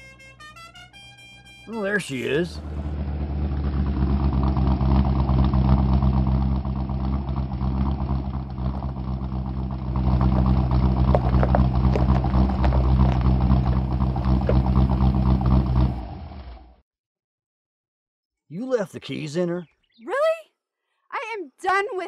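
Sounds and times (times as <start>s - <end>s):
truck engine running at low revs: 2.2s - 16.8s
sharp ticks and pops: 8.5s - 15.5s.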